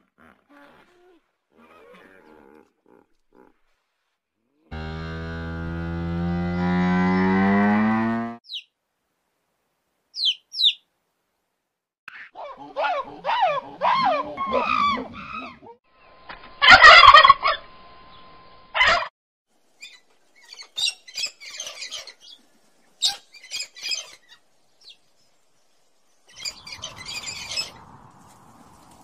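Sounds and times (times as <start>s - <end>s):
wavering animal calls: 12.2s - 15.8s.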